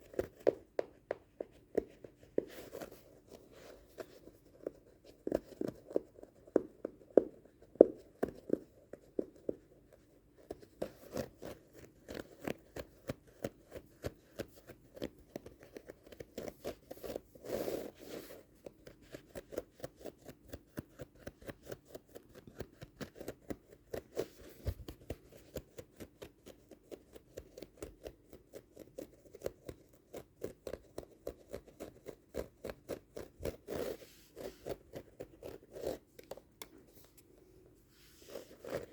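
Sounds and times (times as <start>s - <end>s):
carpet pile being scratched: 30.4s - 37.2s, 37.8s - 38.9s.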